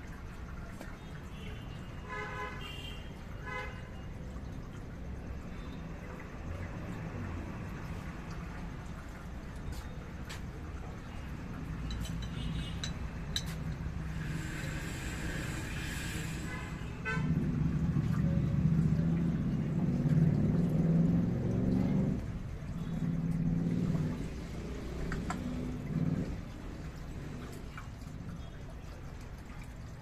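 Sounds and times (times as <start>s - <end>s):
brief hiss: 14.2s - 17.0s
vehicle engine starting and running: 17.3s - 26.6s.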